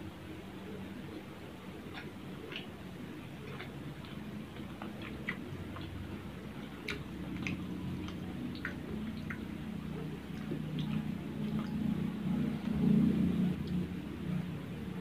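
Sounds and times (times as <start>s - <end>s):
low background rumble: 0.0s - 15.0s
mouth clicks and smacks: 1.7s - 13.9s
person chewing: 1.8s - 13.0s.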